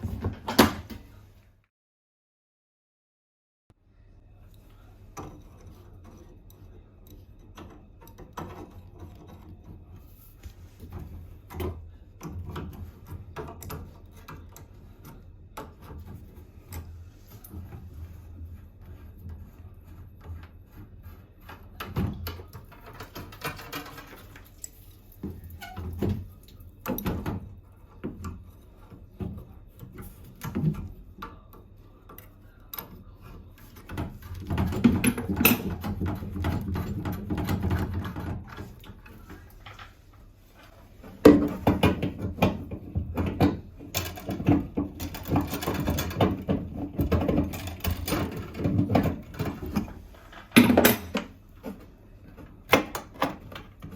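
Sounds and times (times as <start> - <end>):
plumbing work knocks and rattles: 10.8 - 31.6, 32.8 - 40.0, 41.0 - 53.9.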